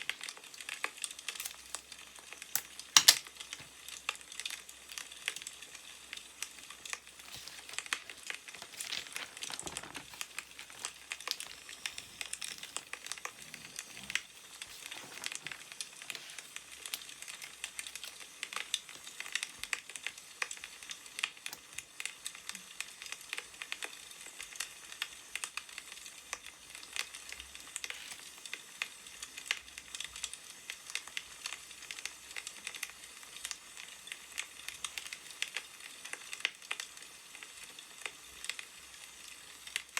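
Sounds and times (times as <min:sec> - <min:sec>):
wood fire crackling: 0:00.0 - 0:39.9
newspaper pages rustling: 0:06.4 - 0:20.2.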